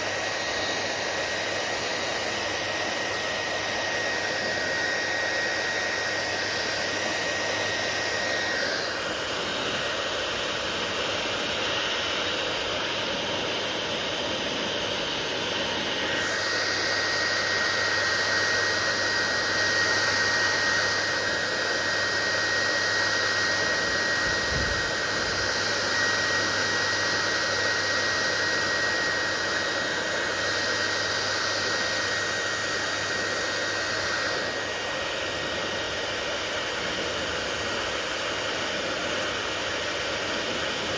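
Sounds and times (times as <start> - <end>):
hair dryer blowing air: 0.0 - 40.9.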